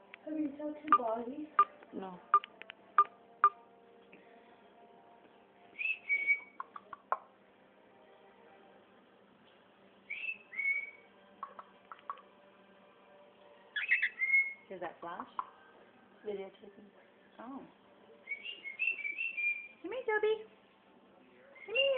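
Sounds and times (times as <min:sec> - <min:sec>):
sharp clicks: 0:02.4 - 0:03.6
cockatiel whistling: 0:05.8 - 0:06.7, 0:10.1 - 0:11.6, 0:13.8 - 0:14.6, 0:18.3 - 0:19.8.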